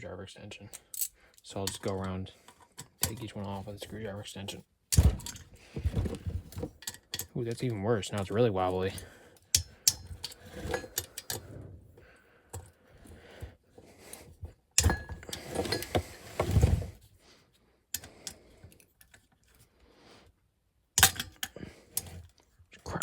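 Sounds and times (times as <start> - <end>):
screwdriver clicking on metal bolts: 21.0 - 21.5.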